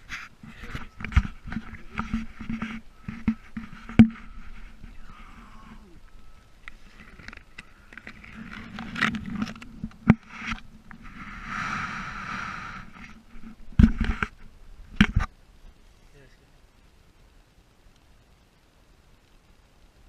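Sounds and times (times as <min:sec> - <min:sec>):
rushing water hiss: 0:00.0 - 0:20.0
steady low hum: 0:00.0 - 0:20.0
camera handling knocks and scrapes: 0:01.0 - 0:04.6, 0:13.8 - 0:14.3.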